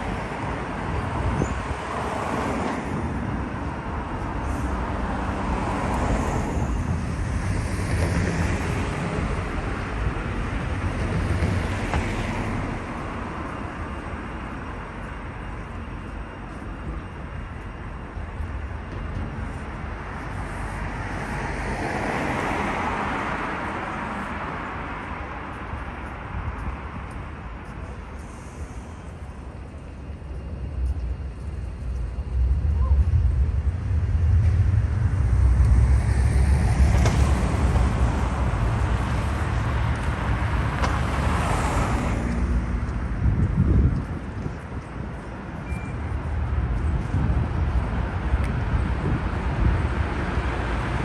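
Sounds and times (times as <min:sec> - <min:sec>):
heavy traffic rumble: 0:00.0 - 0:51.0
vehicle passing: 0:31.1 - 0:43.9.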